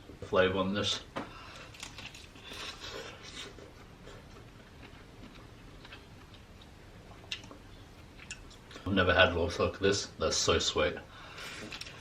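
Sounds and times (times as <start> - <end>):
person chewing: 1.6 - 8.8, 11.4 - 12.0
mouth clicks and smacks: 4.3 - 8.8.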